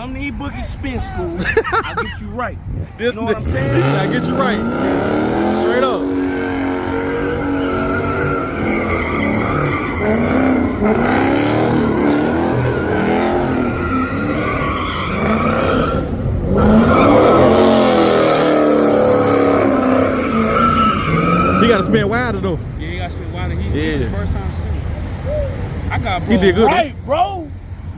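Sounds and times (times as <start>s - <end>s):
car engine revving: 3.0s - 24.9s
tyres squealing: 3.1s - 11.0s.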